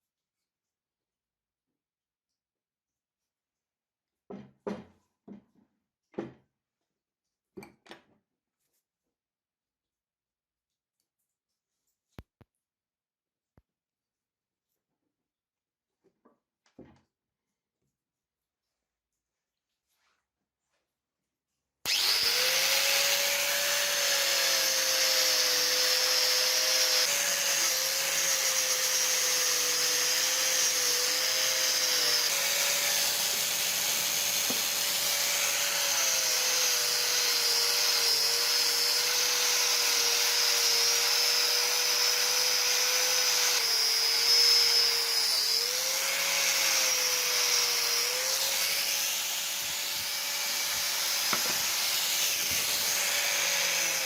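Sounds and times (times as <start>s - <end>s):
power tool motor running: 21.9s - 54.0s.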